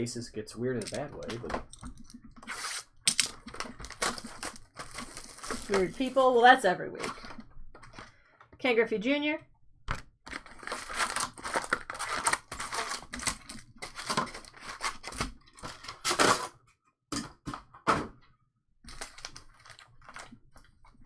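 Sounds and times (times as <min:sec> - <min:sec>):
cards being flipped through: 0:00.8 - 0:06.2.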